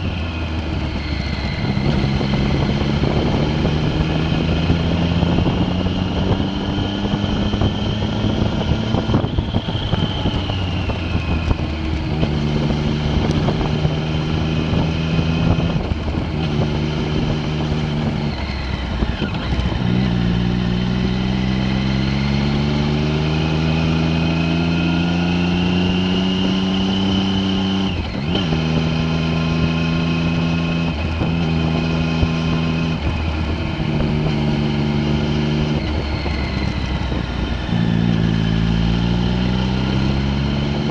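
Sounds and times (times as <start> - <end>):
vehicle engine changing gears: 0.0 - 40.9.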